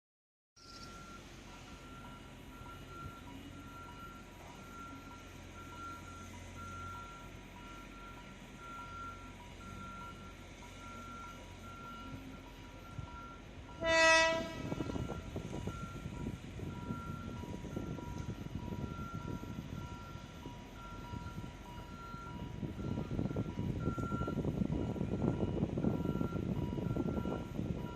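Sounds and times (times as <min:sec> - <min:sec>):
train rumbling and clattering: 0:00.8 - 0:27.9
train horn blast: 0:13.7 - 0:15.3
faint even beeping: 0:14.7 - 0:27.9.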